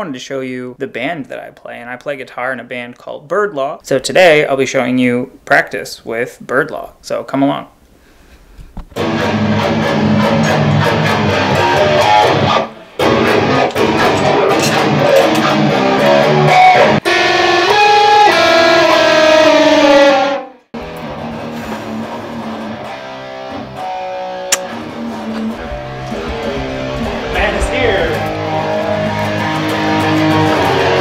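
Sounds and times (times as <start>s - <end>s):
held guitar notes: 9.0s - 31.0s
rock band playing: 9.0s - 31.0s.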